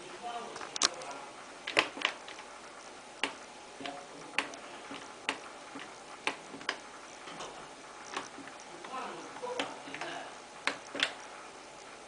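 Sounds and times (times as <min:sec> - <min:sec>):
washing machine panel clicks: 0:09.6 - 0:11.2.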